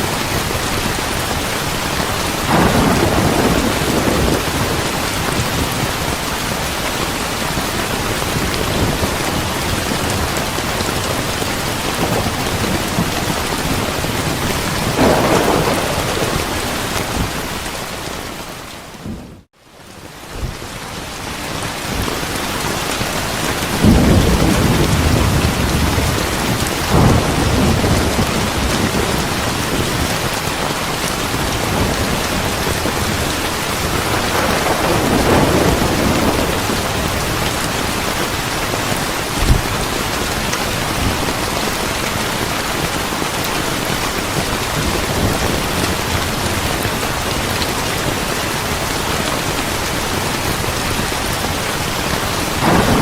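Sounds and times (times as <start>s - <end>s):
steady rain: 0.0s - 53.0s
rolling thunder: 2.2s - 6.6s, 8.2s - 18.1s, 23.7s - 30.5s, 31.2s - 38.5s, 52.4s - 53.0s.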